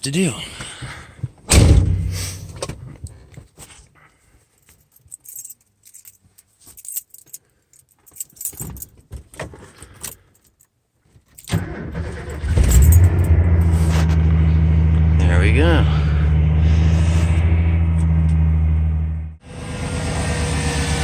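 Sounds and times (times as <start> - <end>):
keys jangling: 4.6 - 9.0, 12.6 - 13.3
truck engine cranking: 11.5 - 15.1.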